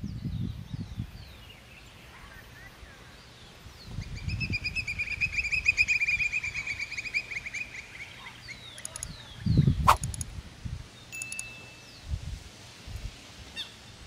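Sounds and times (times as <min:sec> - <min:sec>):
sharp click: 0:09.9 - 0:10.3, 0:11.2 - 0:11.5.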